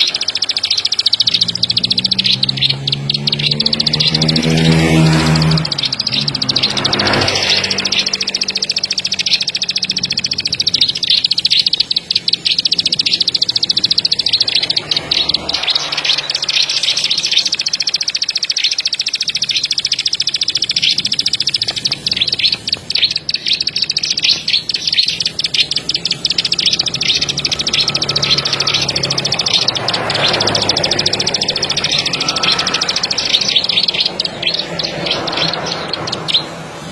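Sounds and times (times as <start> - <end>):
songbird singing rapid clicking notes: 0.0 - 36.9.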